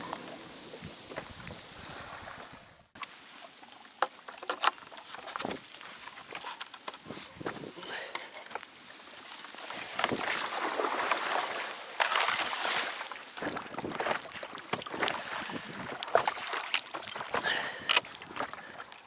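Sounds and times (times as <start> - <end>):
water splashing and sloshing: 0.2 - 19.0
boat knocks and clicks: 4.0 - 8.7.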